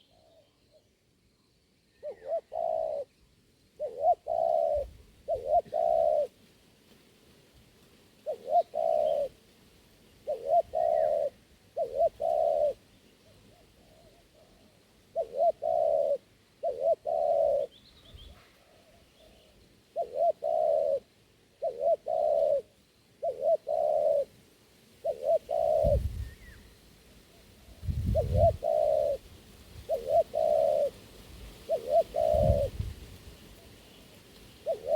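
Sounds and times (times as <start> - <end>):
dove cooing: 0.0 - 0.6, 2.0 - 3.1, 3.8 - 6.4, 8.2 - 9.4, 10.2 - 24.4, 25.0 - 34.9.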